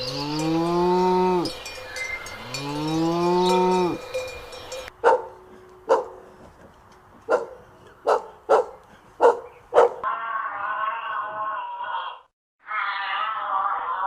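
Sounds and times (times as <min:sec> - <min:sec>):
cow mooing: 0:00.0 - 0:01.6, 0:02.3 - 0:04.1
dog barking: 0:05.0 - 0:06.2, 0:07.3 - 0:10.1.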